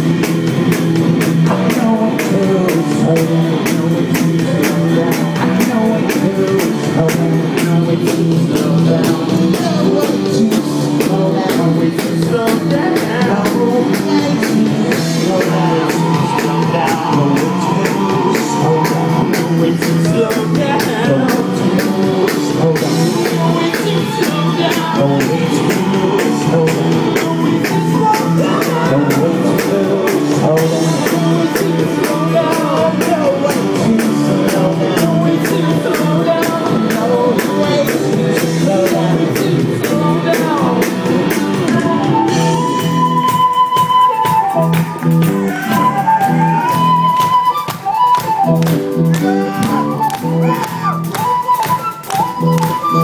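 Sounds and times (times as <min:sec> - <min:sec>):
drums fast steady beat: 0:00.0 - 0:53.0
keyboard notes: 0:00.0 - 0:53.0
sustained guitar notes: 0:40.6 - 0:53.0.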